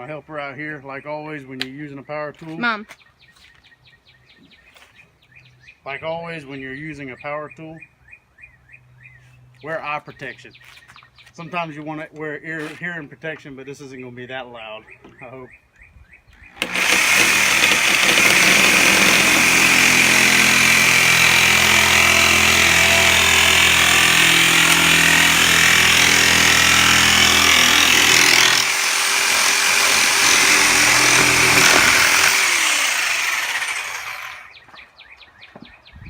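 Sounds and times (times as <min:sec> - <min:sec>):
reciprocating saw cutting: 0:16.6 - 0:34.5.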